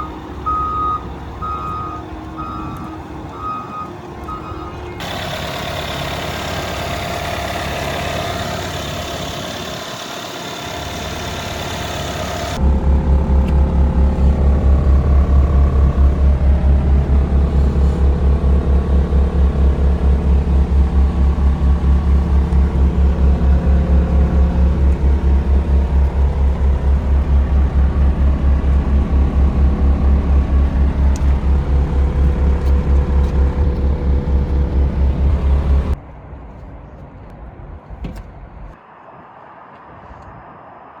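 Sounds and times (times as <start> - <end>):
diesel engine throbbing: 0.0 - 36.0.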